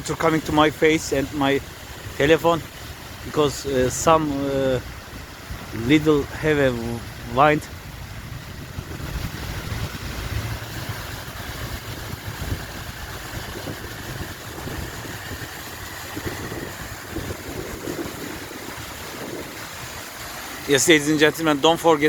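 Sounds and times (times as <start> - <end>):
wind buffeting microphone: 0.0 - 21.7
fountain water falling: 0.0 - 22.0.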